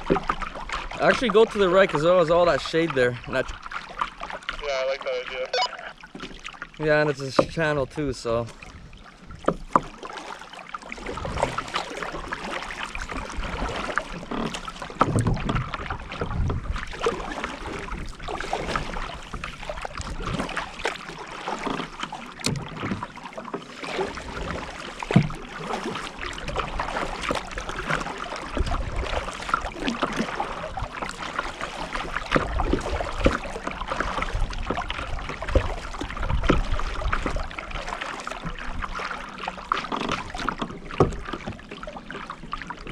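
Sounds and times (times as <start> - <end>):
paddle splashing in water: 0.0 - 42.9
wind rumble on microphone: 15.0 - 20.6, 34.2 - 37.7.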